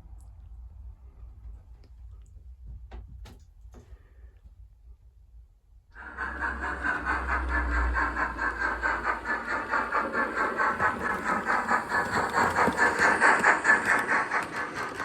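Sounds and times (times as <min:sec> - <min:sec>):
model train clattering on track: 0:06.0 - 0:15.0.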